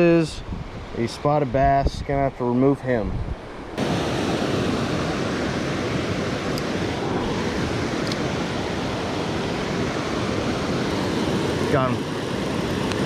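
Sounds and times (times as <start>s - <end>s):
creek water rushing over falls: 3.8s - 13.0s.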